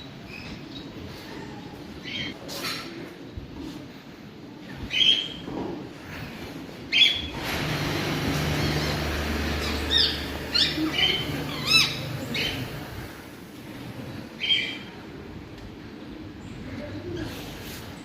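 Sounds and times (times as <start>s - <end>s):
birds squawking and chirping: 6.9s - 13.2s, 14.4s - 14.9s.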